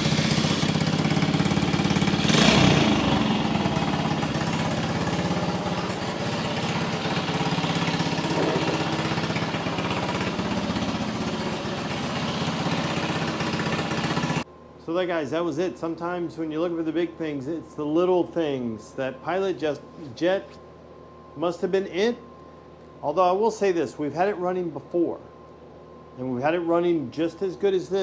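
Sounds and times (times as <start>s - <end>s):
motorcycle engine idling: 0.0s - 14.4s.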